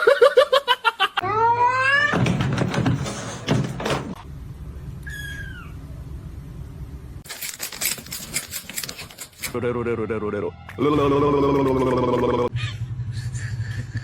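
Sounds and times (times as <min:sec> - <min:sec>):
clattering knocks: 0:02.2 - 0:04.2.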